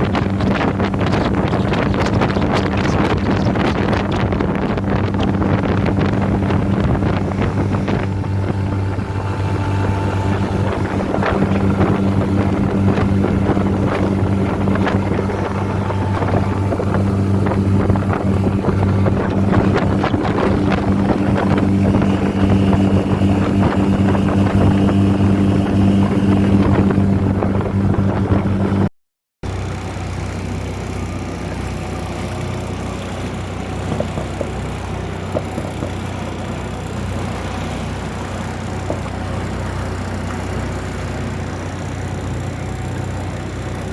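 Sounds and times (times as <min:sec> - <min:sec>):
water noise: 0:00.0 - 0:28.9, 0:29.5 - 0:43.9
wind buffeting: 0:00.0 - 0:28.9
outboard motor running: 0:00.0 - 0:43.9.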